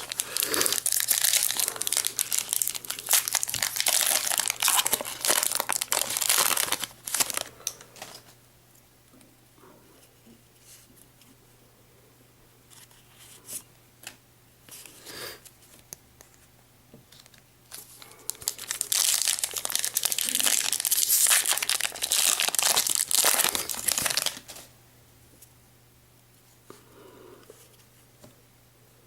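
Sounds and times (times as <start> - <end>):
foil wrapper crinkling and tearing: 0.0 - 8.3, 17.3 - 24.7.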